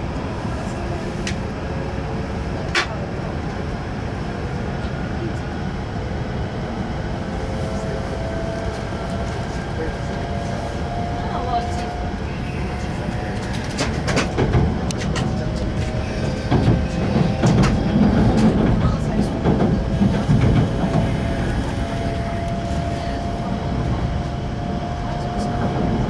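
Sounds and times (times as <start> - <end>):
train cabin rumble: 0.0 - 26.0
steady whine: 6.9 - 26.0.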